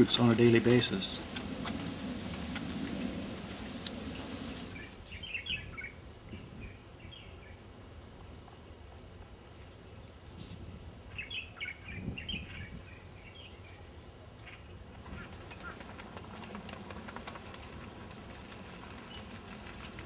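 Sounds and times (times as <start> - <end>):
low background noise: 0.0 - 20.0
small birds chirping: 3.9 - 16.0.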